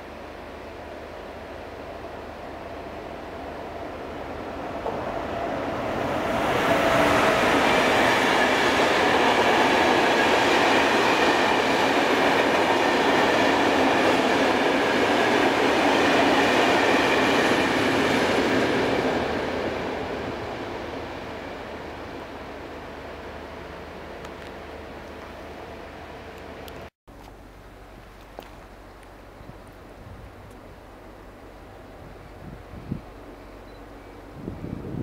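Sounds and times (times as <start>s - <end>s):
freight train wheels on rails: 0.0s - 26.9s.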